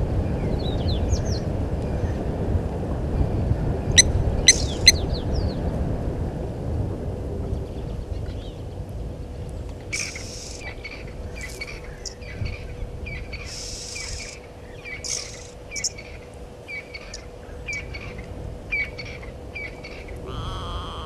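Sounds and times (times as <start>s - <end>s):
faint hum: 0.0s - 21.0s
low outdoor rumble: 0.0s - 21.0s
bird chirping: 4.0s - 5.1s, 13.4s - 18.2s
harsh hissing bird calls: 4.5s - 5.0s, 9.9s - 12.4s, 13.1s - 21.0s.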